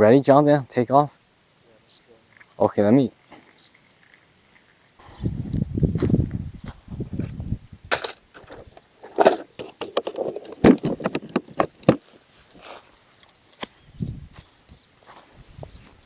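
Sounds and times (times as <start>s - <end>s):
gear clicking and rustling: 2.2s - 6.4s, 7.9s - 13.8s
footsteps: 5.9s - 9.4s, 10.2s - 16.0s.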